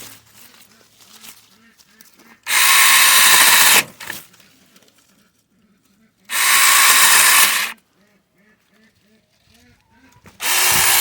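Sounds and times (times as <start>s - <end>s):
mini chainsaw cutting branches: 2.4s - 4.2s, 6.3s - 7.8s, 10.3s - 11.0s.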